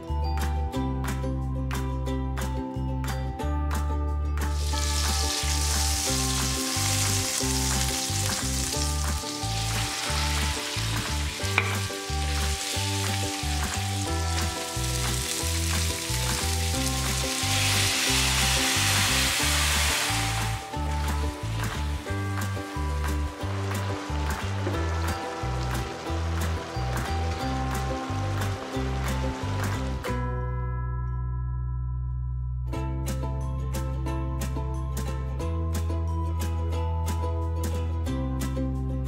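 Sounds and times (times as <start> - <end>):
cheerful ukulele music: 0.0 - 30.8, 32.6 - 39.0
chicken sizzling in butter: 4.6 - 30.0.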